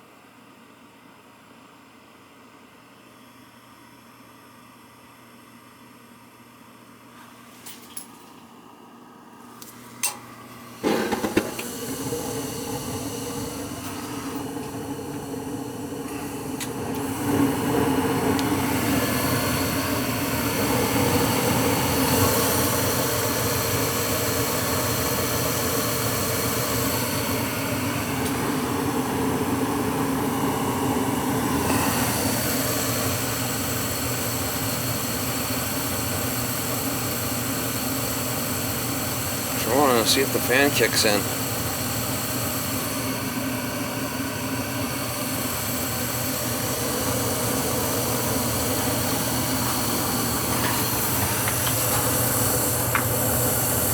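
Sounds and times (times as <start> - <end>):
furnace motor hum: 2.8 - 53.9
furnace click: 10.8 - 17.1, 48.1 - 53.9.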